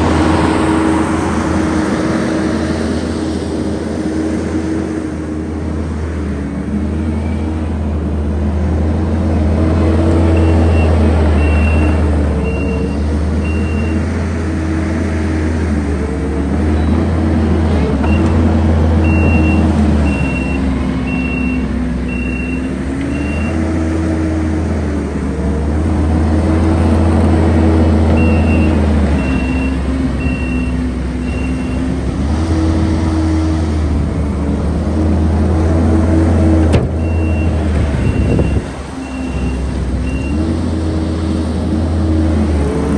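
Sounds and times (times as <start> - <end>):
diesel engine revving under load: 0.0 - 42.9.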